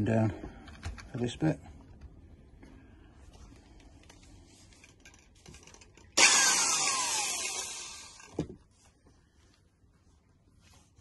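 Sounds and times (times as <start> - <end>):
power drill boring into plastic: 6.2 - 8.4.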